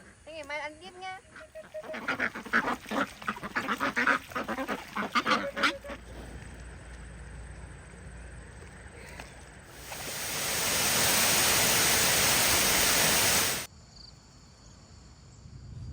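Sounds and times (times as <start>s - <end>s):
waterfowl calling: 1.2s - 6.7s.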